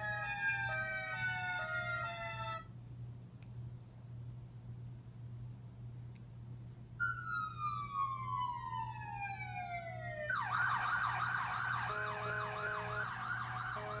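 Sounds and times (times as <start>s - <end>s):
siren wailing and yelping: 0.0s - 2.6s, 7.0s - 14.0s.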